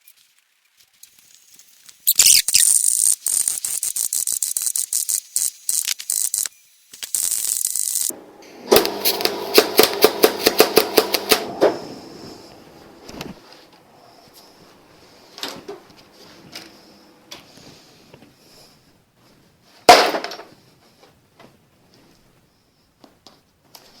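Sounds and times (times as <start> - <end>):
welding arc crackling and hissing: 0.0 - 8.1, 8.8 - 11.4
motor humming with sharp ticks: 2.8 - 11.3.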